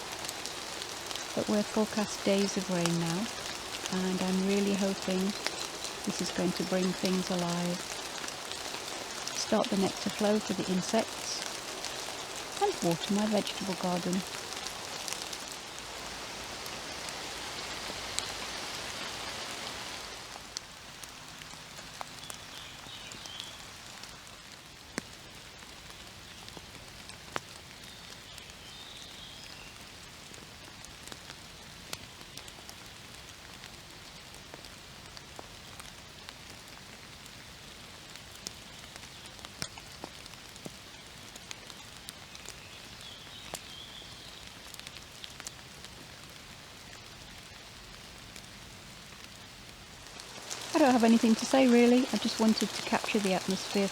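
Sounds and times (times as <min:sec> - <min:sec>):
soft rain patter: 0:00.0 - 0:53.9
water dripping from trees: 0:00.0 - 0:53.9.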